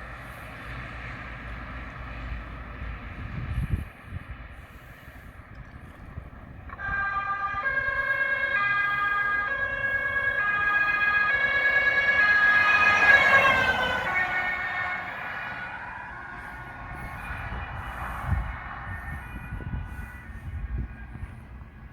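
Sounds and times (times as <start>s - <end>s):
two-tone siren: 6.5s - 21.9s.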